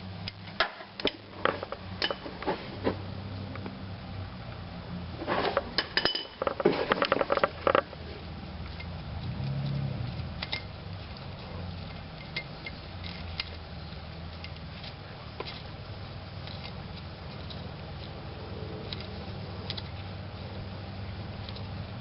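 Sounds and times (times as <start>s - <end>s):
steady low hum: 0.0s - 22.0s
metal tools clinking: 5.3s - 8.0s, 11.8s - 13.6s.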